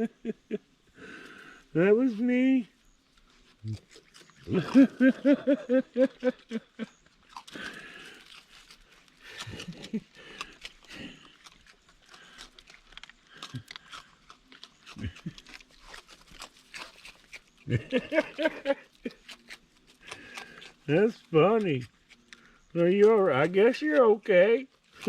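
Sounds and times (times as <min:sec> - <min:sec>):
woman laughing: 0:00.0 - 0:00.7, 0:04.5 - 0:06.9, 0:17.7 - 0:19.0
rustling: 0:01.0 - 0:23.8, 0:24.6 - 0:25.0.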